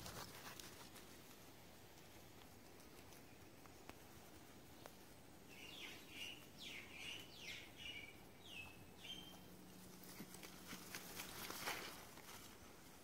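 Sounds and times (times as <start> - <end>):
light clicks and crackles: 0.0 - 5.1
bird chirping: 4.7 - 9.8.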